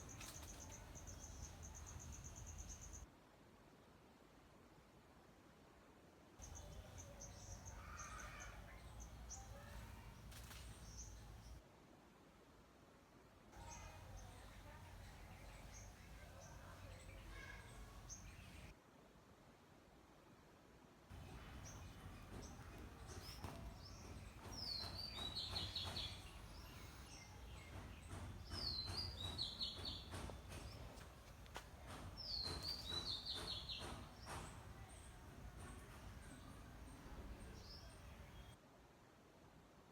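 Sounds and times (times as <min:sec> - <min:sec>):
small birds chirping: 0:00.0 - 0:03.1, 0:06.4 - 0:11.6, 0:13.6 - 0:18.7, 0:21.1 - 0:38.6.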